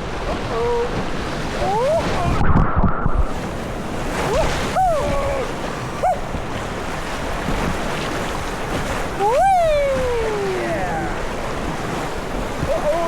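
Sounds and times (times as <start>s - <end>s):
wind on microphone: 0.0s - 13.0s
river rapids rushing: 3.3s - 13.0s.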